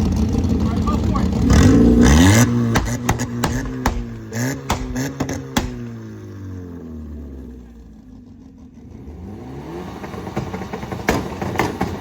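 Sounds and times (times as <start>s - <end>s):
sharp exhaust cracks: 0.0s - 6.7s
car engine revving: 0.0s - 12.0s.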